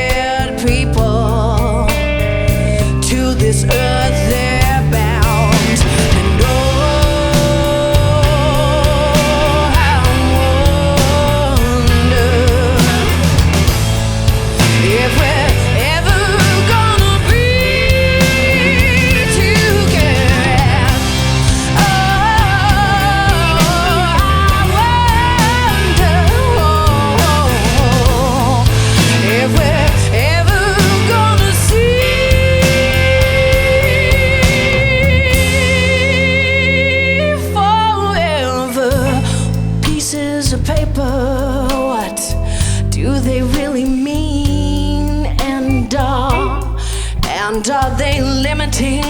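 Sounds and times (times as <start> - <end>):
bass: 0.0 - 49.0
drums: 0.0 - 49.0
rock band playing: 0.0 - 49.0.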